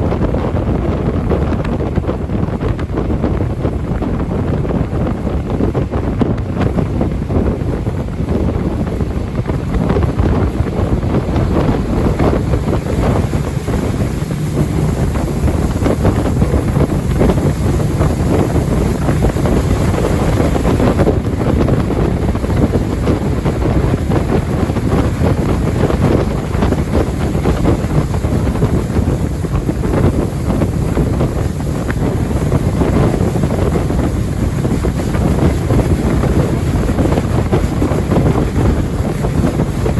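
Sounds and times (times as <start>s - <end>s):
jet boat engine: 0.0s - 39.9s
wind buffeting microphone: 0.0s - 39.9s
water rushing: 6.4s - 39.9s.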